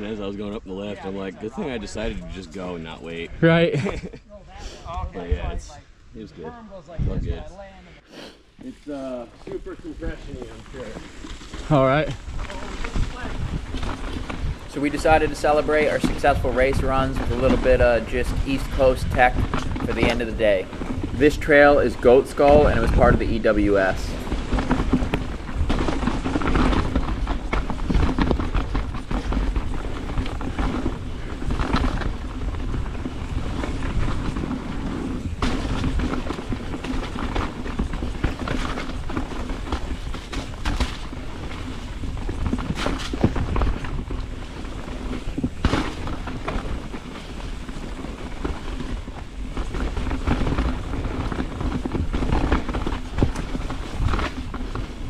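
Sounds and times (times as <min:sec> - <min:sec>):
wind on microphone: 0:06.9 - 0:07.5, 0:12.0 - 0:55.0
bike tyres rumbling on rocks: 0:09.0 - 0:55.0
bike knocking on rocks: 0:10.4 - 0:55.0.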